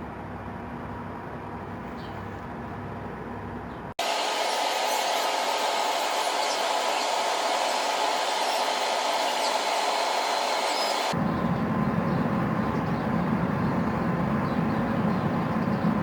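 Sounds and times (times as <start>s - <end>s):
steady blower hiss: 4.0s - 11.2s
low rumbling noise: 4.3s - 16.0s.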